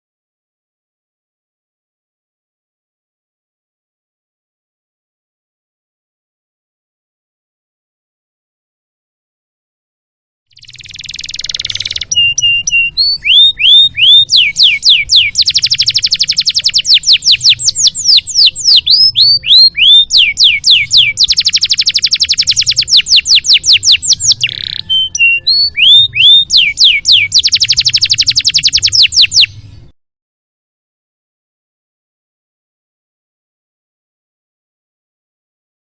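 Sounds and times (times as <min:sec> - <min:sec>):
canary singing trills and whistles: 0:10.5 - 0:29.9.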